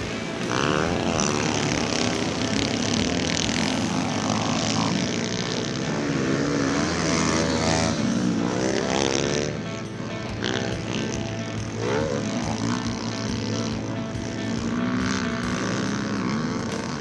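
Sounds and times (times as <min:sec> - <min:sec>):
small motorbike engines revving: 0:00.0 - 0:17.0.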